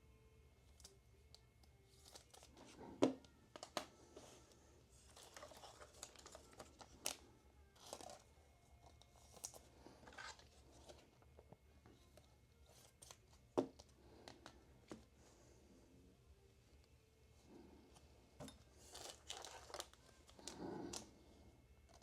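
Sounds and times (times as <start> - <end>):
plastic packaging crinkling and tearing: 5.0 - 7.2, 18.8 - 21.1.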